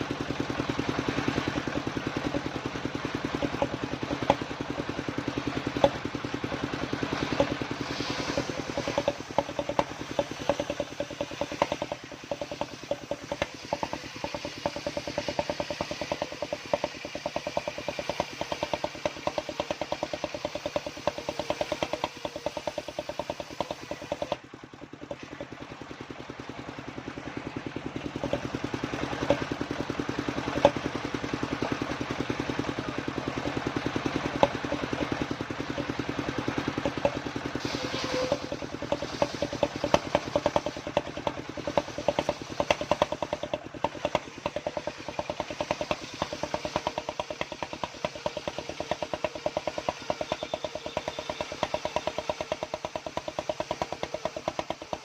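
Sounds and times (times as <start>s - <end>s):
engine running: 0.0s - 55.0s
sharp knocks: 7.0s - 25.6s, 33.3s - 55.0s.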